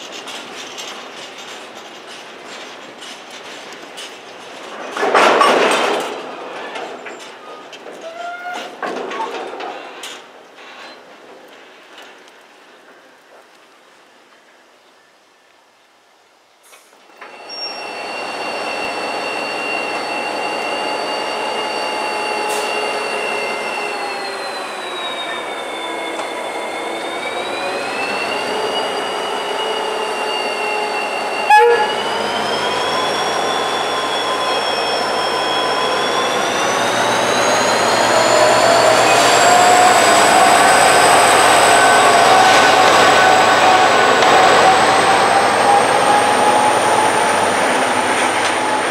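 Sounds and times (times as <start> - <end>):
diesel locomotive whine: 0.0 - 13.3, 17.0 - 48.9
freight train on rails: 0.0 - 48.9.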